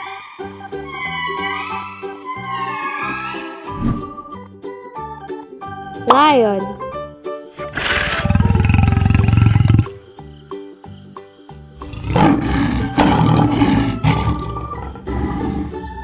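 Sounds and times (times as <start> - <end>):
lion roaring: 7.7 - 10.0, 11.8 - 16.0.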